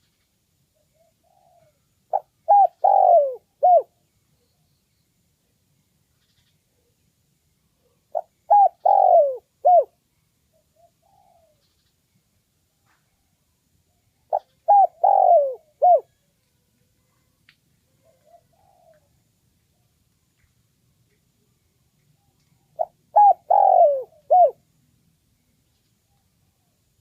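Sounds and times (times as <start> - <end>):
dove cooing: 0.9 - 4.0, 7.8 - 11.8, 14.3 - 16.2, 17.9 - 19.2, 22.8 - 24.6.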